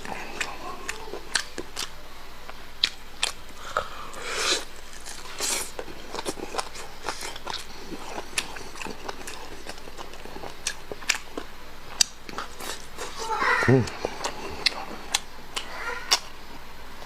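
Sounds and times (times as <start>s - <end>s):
person chewing with mouth clicks: 0.0s - 16.4s
breathy sounds: 3.6s - 4.7s.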